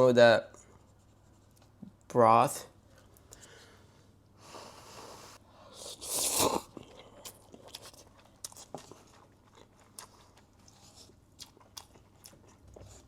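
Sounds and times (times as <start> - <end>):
person chewing with crunches: 5.8 - 13.0.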